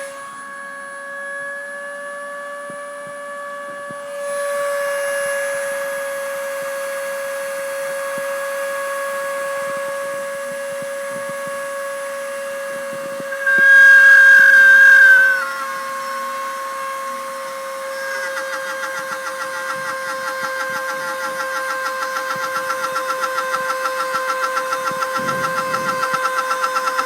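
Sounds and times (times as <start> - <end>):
rotary tool high whine: 0.0 - 27.0
bit routing hiss: 13.0 - 27.0.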